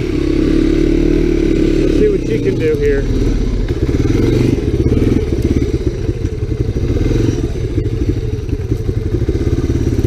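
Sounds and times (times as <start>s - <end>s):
engine with low pulsing beat: 0.0s - 10.0s.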